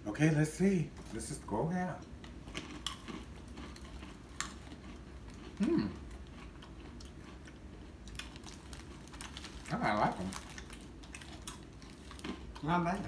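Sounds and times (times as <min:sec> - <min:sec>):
chewing crunchy peanuts: 0:01.9 - 0:13.0
person humming: 0:05.6 - 0:06.0.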